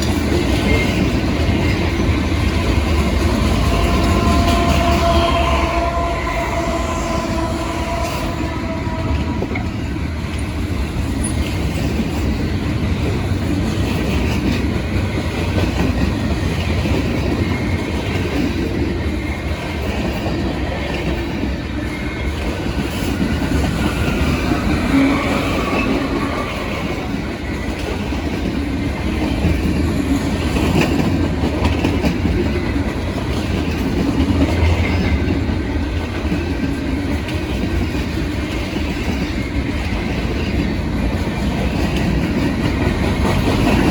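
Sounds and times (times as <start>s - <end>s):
freight cars rumbling past: 0.0s - 11.2s
locomotive horn: 2.3s - 10.5s, 24.0s - 27.3s.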